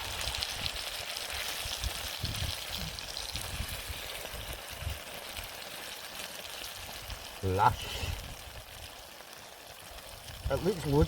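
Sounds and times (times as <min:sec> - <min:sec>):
food sizzling in a pot: 0:00.0 - 0:11.0.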